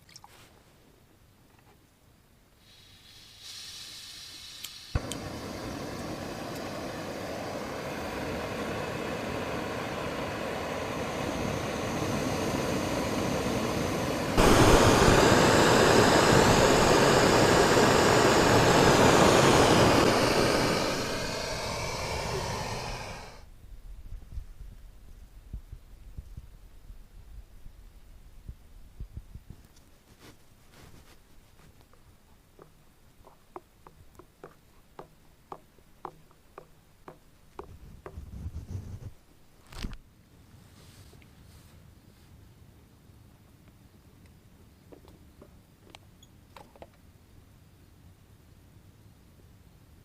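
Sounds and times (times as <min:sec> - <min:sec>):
gas hissing: 0:02.6 - 0:23.5
gas burner roaring: 0:02.7 - 0:23.5
burner ignition click: 0:04.4 - 0:23.4.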